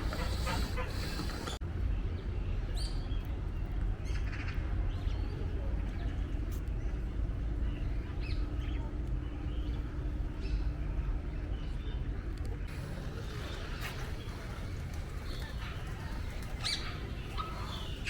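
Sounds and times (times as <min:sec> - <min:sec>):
short bird calls: 0:00.0 - 0:01.6, 0:12.7 - 0:18.0.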